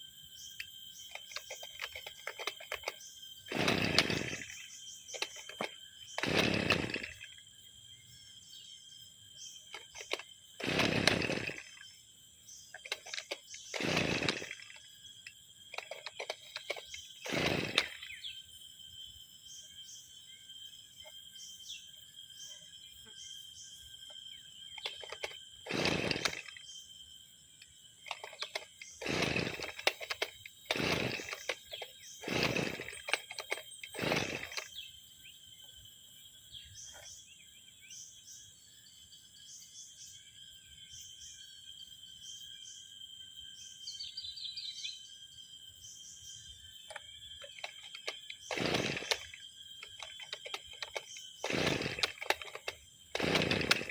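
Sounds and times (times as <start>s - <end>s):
recoil starter pulls: 0.6s - 7.4s, 9.6s - 11.9s, 12.7s - 18.3s, 24.7s - 26.8s, 28.0s - 34.9s, 46.8s - 53.9s.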